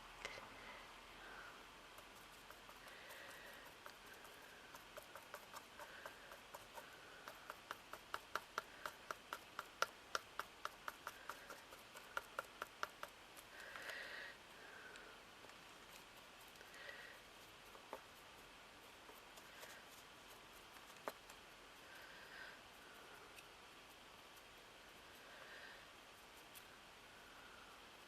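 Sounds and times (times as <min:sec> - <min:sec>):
paintbrush tapping: 0:02.0 - 0:14.0, 0:14.9 - 0:21.5
soft rustle: 0:10.6 - 0:28.0.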